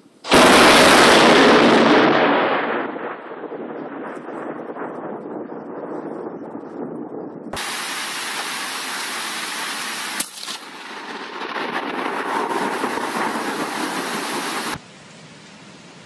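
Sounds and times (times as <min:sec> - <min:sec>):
heavy rain hissing: 0:00.0 - 0:02.6, 0:07.6 - 0:16.0
sharp crack: 0:00.0 - 0:05.9, 0:07.6 - 0:14.8.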